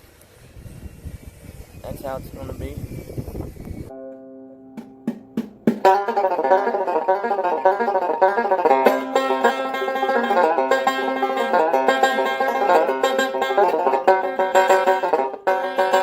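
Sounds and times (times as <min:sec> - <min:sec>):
banjo picking: 0:03.9 - 0:16.0.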